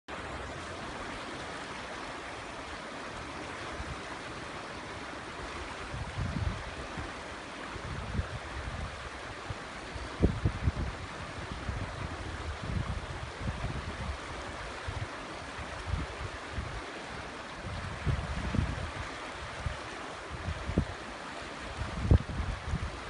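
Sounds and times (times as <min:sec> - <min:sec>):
river water rushing: 0:00.1 - 0:23.0
wind buffeting microphone: 0:05.4 - 0:23.0.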